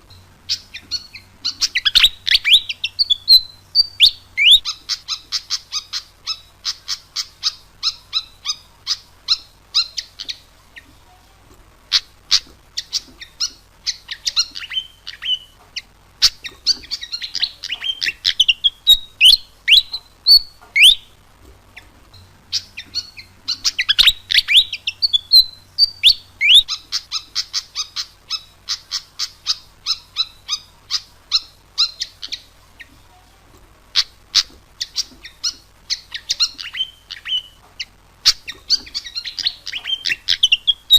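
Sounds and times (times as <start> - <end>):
bird whistled phrases: 0.5 - 10.4, 16.4 - 21.2, 22.6 - 32.5, 38.2 - 40.9.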